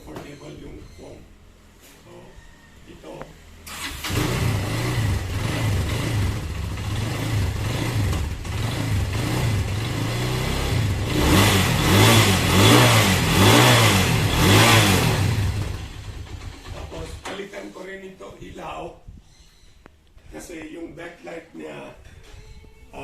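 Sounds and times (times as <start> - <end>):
motorcycle engine revving: 3.7 - 17.3.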